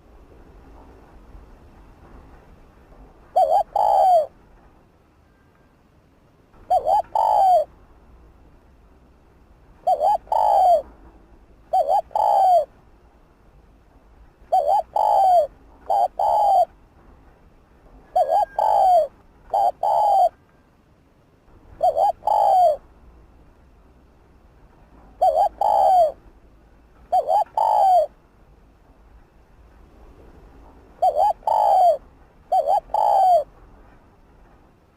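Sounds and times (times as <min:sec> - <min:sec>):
dove cooing: 0:03.3 - 0:04.3, 0:06.6 - 0:07.7, 0:09.8 - 0:10.9, 0:11.7 - 0:12.7, 0:14.5 - 0:16.7, 0:18.1 - 0:20.4, 0:21.8 - 0:22.8, 0:25.2 - 0:26.2, 0:27.1 - 0:28.2, 0:31.0 - 0:33.5.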